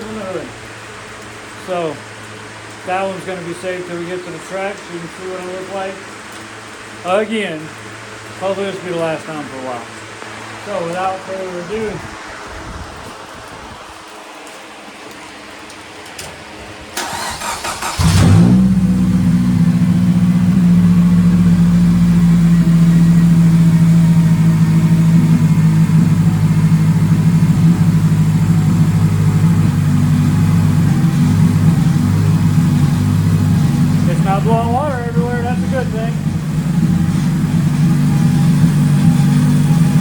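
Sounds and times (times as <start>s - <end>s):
starter motor cranking: 17.0s - 20.5s, 22.3s - 40.0s
car engine running: 17.0s - 40.0s.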